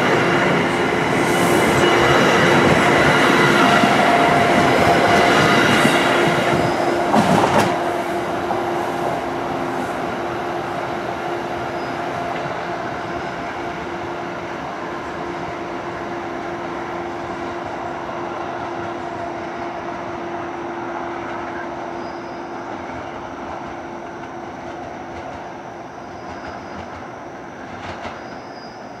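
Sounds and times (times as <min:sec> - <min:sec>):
train rumble and rail noise: 0:00.0 - 0:29.0.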